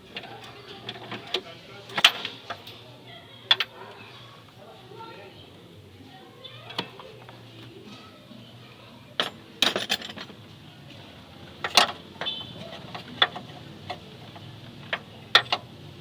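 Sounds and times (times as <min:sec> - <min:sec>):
metal tools clanking: 0:00.1 - 0:02.9, 0:09.2 - 0:10.4, 0:11.5 - 0:15.8.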